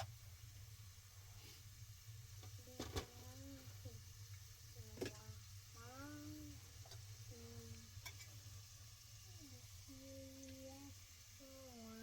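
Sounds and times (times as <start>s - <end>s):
faint high voice singing: 9.9s - 12.0s.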